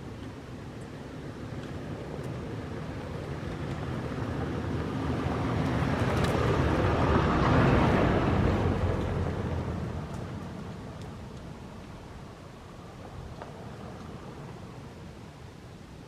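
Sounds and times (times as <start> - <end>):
vehicle driving past: 4.9 - 10.7.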